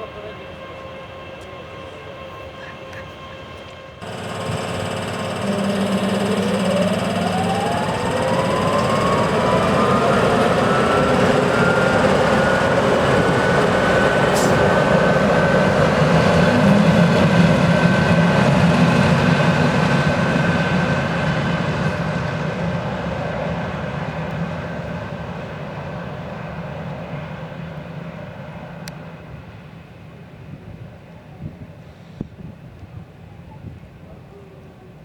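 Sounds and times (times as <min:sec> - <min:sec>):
wheels rumbling on rail: 0:03.6 - 0:32.7
train motors whining: 0:04.0 - 0:18.3.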